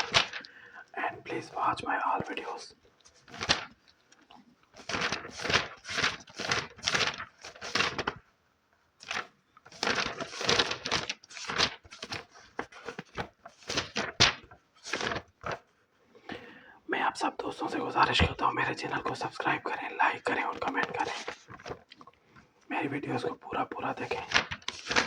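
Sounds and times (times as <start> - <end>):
paper rustling and crinkling: 0.0 - 8.3, 8.9 - 16.0, 18.0 - 22.6, 23.2 - 25.0.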